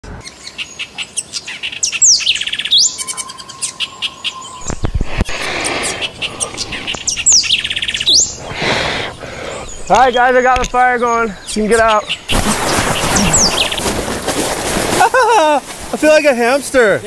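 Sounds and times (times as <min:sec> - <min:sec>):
songbird whistles and trills: 0:00.2 - 0:05.0, 0:05.6 - 0:08.5, 0:11.4 - 0:13.9
hissing noise: 0:04.6 - 0:07.4, 0:12.3 - 0:16.8.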